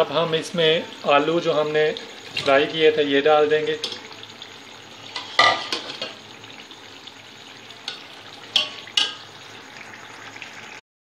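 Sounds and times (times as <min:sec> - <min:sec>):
food sizzling in oil: 0:00.0 - 0:10.8
metal spoon scraping a pot: 0:05.1 - 0:06.2.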